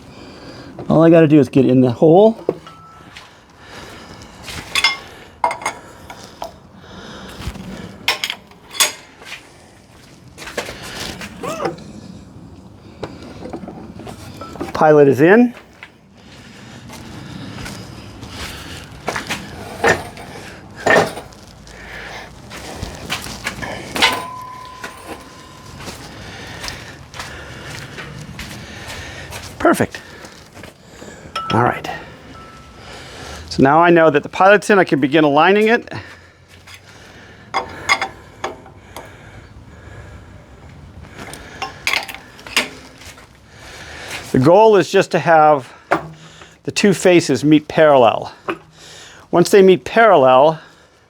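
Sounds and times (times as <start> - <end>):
metal clanks: 2.4 - 3.1, 4.6 - 6.6, 8.1 - 9.2, 19.7 - 21.4, 23.4 - 26.8, 31.3 - 32.8, 37.5 - 39.2, 41.2 - 43.2, 45.9 - 46.4, 48.4 - 48.8
metallic clinks and knocks: 2.4 - 3.1, 4.7 - 6.6, 8.1 - 9.2, 23.5 - 26.7, 31.3 - 32.8, 37.5 - 39.2, 41.2 - 43.2
low hum: 23.6 - 26.7.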